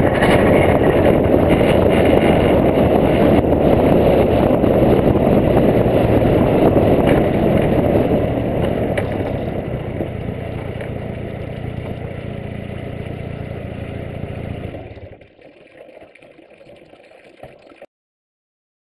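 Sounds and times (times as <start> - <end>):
car engine idling: 0.0 - 15.1
road and wind rush: 0.0 - 15.2.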